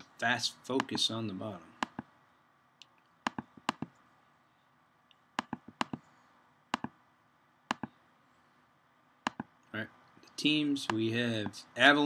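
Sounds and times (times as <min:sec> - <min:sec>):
computer mouse clicking: 0:01.8 - 0:02.1, 0:02.8 - 0:04.0, 0:05.1 - 0:06.0, 0:06.7 - 0:07.0, 0:07.7 - 0:08.0, 0:09.2 - 0:09.5.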